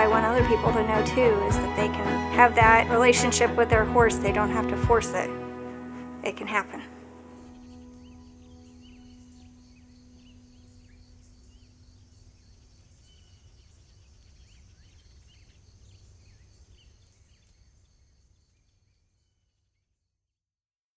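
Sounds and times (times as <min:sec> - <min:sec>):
bird chirps: 0:06.9 - 0:20.0.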